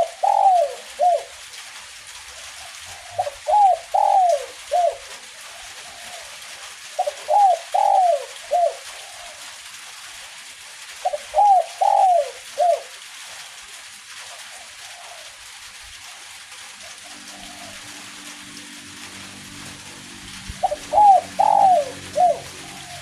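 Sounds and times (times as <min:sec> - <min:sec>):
dove cooing: 0:00.0 - 0:01.4, 0:02.4 - 0:09.5, 0:11.0 - 0:13.0, 0:14.4 - 0:23.0
light drizzle hissing: 0:00.0 - 0:23.0.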